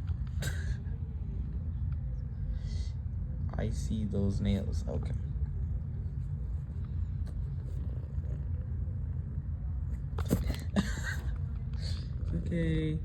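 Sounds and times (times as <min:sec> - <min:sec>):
cat purring: 0:07.4 - 0:08.9.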